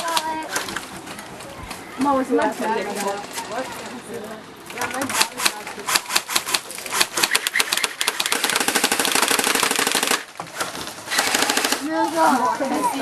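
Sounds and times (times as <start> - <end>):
airsoft gunfire: 5.0 - 11.9.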